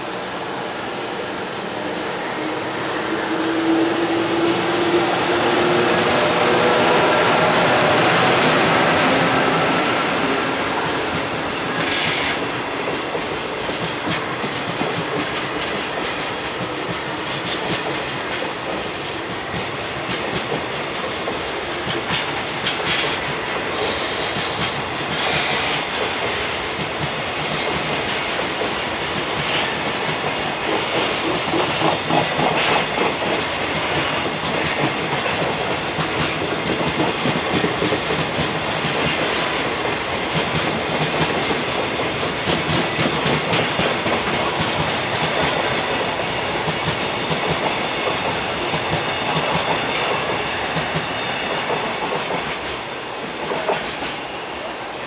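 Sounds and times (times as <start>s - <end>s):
train wheels clattering over rail joints: 10.8s - 54.3s.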